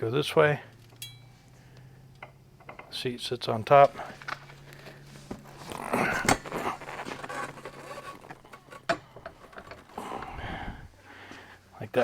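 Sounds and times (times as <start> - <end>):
steady low hum: 0.0 - 12.0
metal clicks and rattles: 4.2 - 10.5.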